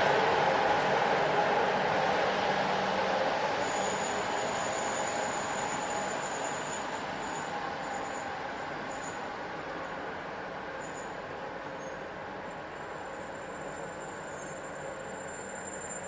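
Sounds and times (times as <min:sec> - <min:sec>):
train rolling along track: 0:00.0 - 0:16.0
high wheel squeal: 0:03.5 - 0:10.0, 0:10.7 - 0:16.0.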